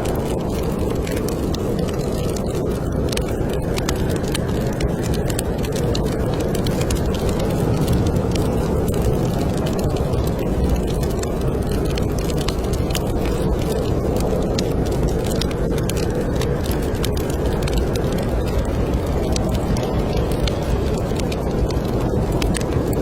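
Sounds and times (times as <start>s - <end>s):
fireplace fire crackling: 0.0s - 23.0s
snowstorm wind: 0.0s - 23.0s.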